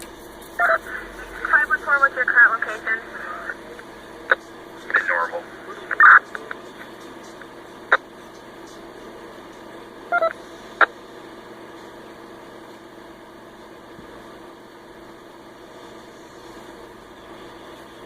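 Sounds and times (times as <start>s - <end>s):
radio static hiss: 0.0s - 12.8s
faint hum: 0.0s - 18.0s.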